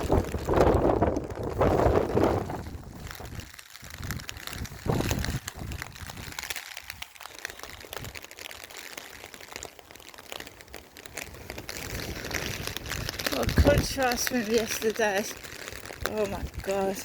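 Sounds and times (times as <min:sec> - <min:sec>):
wind buffeting microphone: 0:00.0 - 0:07.0, 0:11.5 - 0:17.0
heavy rain: 0:00.0 - 0:17.0.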